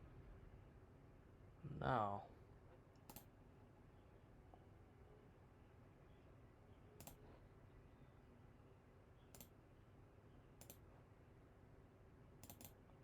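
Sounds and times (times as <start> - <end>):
faint low hum: 0.0 - 13.0
computer mouse clicking: 3.0 - 3.3, 7.0 - 7.2, 9.3 - 9.6, 10.6 - 10.9, 12.4 - 12.8.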